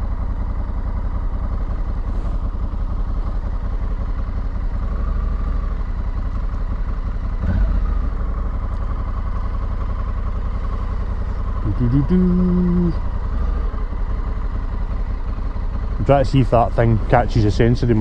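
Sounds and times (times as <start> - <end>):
motorcycle engine running: 0.0 - 18.0
low rumble: 7.2 - 18.0.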